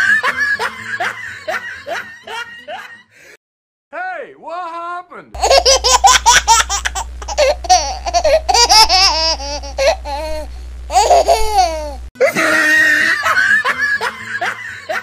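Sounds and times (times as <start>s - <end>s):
child laughing: 5.4s - 15.0s.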